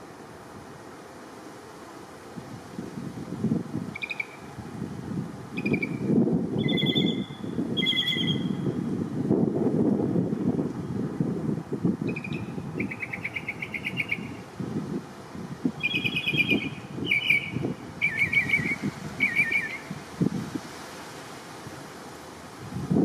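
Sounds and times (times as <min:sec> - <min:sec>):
wind rumble on microphone: 0:02.3 - 0:23.0
bird trilling: 0:04.0 - 0:04.4, 0:05.6 - 0:08.6, 0:12.1 - 0:14.4, 0:15.8 - 0:19.9.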